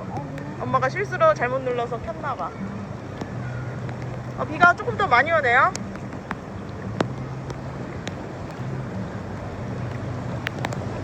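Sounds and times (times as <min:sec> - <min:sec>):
rain hissing onto water: 0:00.0 - 0:11.0
sharp taps of drops: 0:10.4 - 0:10.8.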